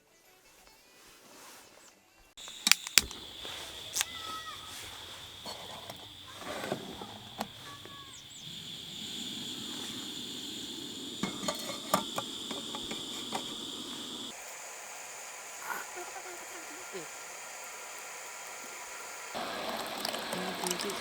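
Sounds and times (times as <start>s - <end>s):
steady hiss: 2.4s - 21.0s
thin high whine: 2.4s - 21.0s
metal cookware clinking: 11.2s - 13.4s.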